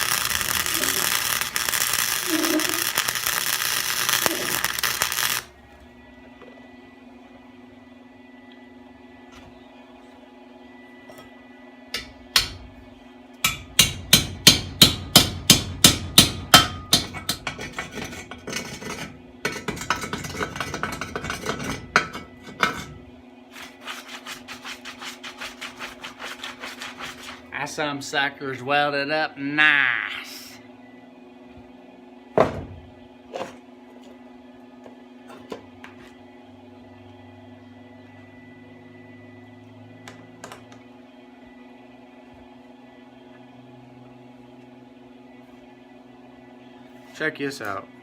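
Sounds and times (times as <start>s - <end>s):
welding arc crackling: 0.0s - 5.6s
sharp metal strikes: 13.4s - 17.6s.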